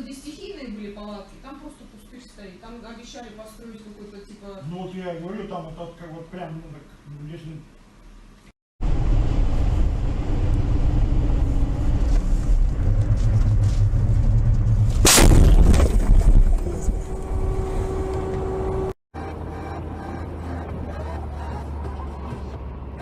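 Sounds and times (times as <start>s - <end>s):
car cabin and road noise: 16.6s - 23.0s.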